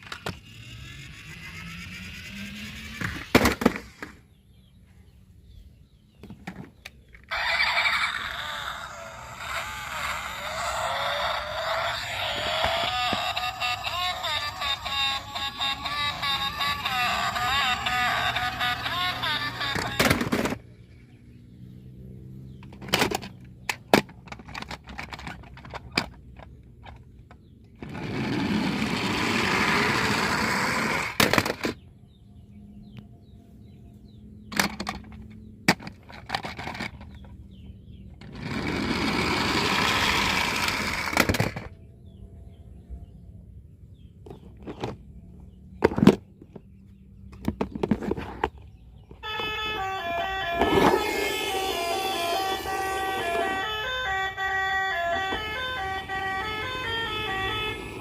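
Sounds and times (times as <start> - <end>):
toy car wheels whirring: 0.0 - 4.2, 7.2 - 21.0, 22.7 - 31.8, 34.5 - 37.4, 38.2 - 41.8, 49.2 - 58.0
toy cars clicking and knocking: 0.0 - 4.2, 6.2 - 20.7, 22.6 - 31.9, 34.5 - 37.5, 38.1 - 41.8, 47.3 - 54.3.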